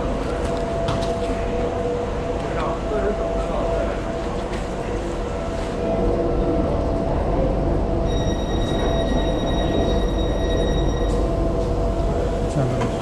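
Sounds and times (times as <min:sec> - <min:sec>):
train rumble on rails: 0:00.0 - 0:13.0
high multi-tone whine: 0:08.0 - 0:13.0.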